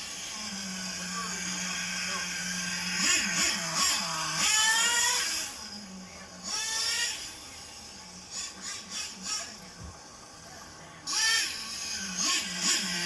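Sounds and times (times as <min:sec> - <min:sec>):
toy truck motor whining: 0:00.0 - 0:05.6, 0:06.4 - 0:07.4, 0:11.1 - 0:13.0.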